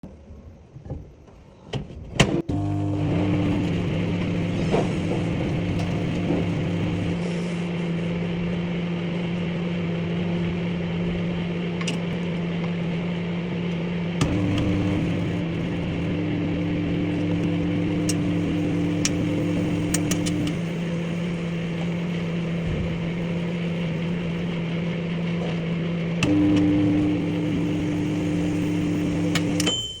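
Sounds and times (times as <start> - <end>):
microwave oven humming: 2.2 - 30.0
sharp clicks: 19.0 - 20.6
short beep: 29.6 - 30.0.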